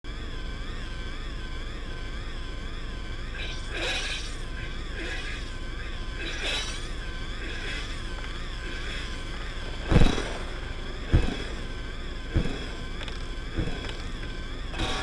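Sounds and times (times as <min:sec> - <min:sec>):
wavering electronic tones: 0:00.2 - 0:15.0
noisy swells: 0:03.4 - 0:15.0.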